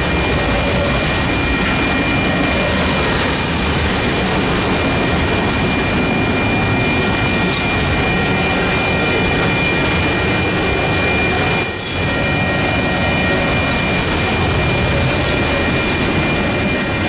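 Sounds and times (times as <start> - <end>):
crossing bell ringing: 0.0 - 17.0
freight train wheels rumbling: 0.0 - 17.0.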